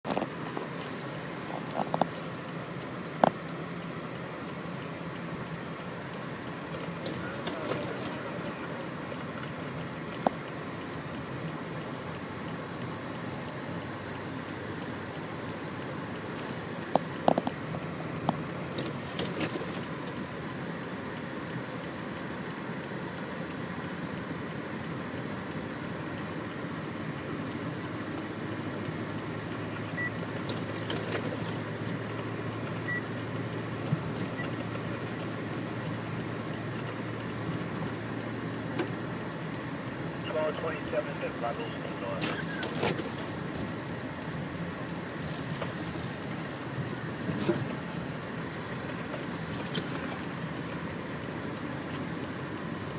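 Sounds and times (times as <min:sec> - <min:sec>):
sharp clicks and knocks: 0:00.0 - 0:02.3, 0:03.0 - 0:12.3, 0:13.1 - 0:25.7, 0:29.2 - 0:52.9
car running noise: 0:00.0 - 0:52.9.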